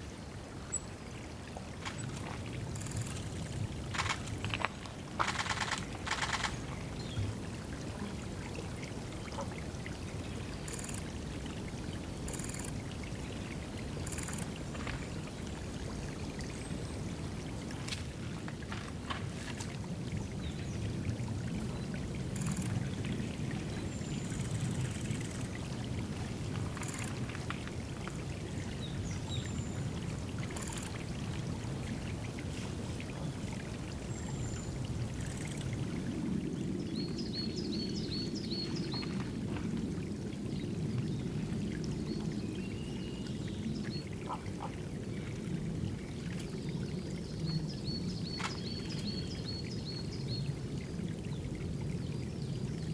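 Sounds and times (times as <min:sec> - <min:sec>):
water pouring and trickling: 0:01.0 - 0:52.9.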